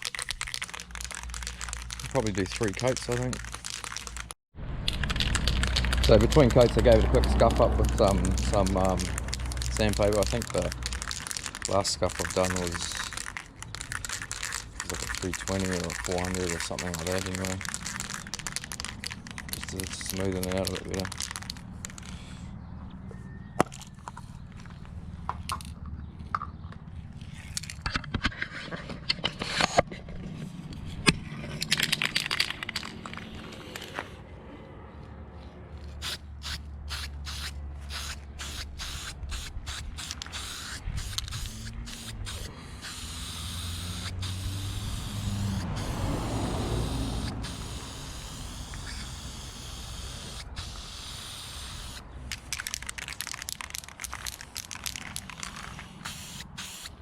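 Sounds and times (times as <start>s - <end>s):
spray can clicking: 4.9s - 13.3s, 36.0s - 46.0s, 47.2s - 57.0s
aerosol spraying hiss: 37.3s - 52.0s, 55.7s - 56.9s.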